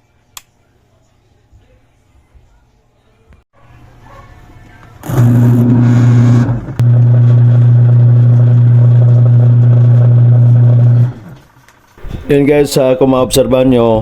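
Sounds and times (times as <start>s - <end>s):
washing machine motor humming: 5.0s - 11.5s.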